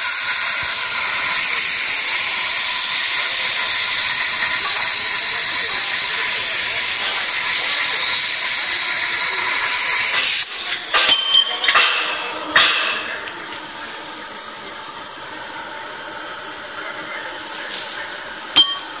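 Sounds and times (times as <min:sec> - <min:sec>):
plasma cutting torch hissing: 0:00.0 - 0:19.0
sharp metallic clinks: 0:18.6 - 0:18.9.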